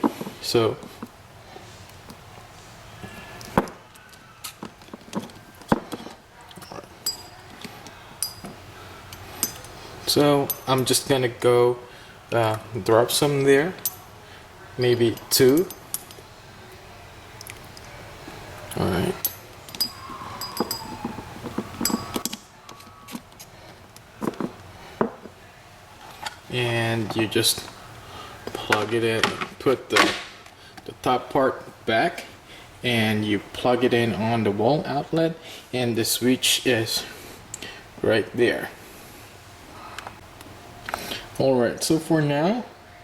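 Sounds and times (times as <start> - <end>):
light ringing clink: 6.6 - 7.5, 8.2 - 9.8, 10.4 - 10.9, 13.8 - 14.2, 14.8 - 16.3, 19.2 - 21.2, 21.8 - 22.4.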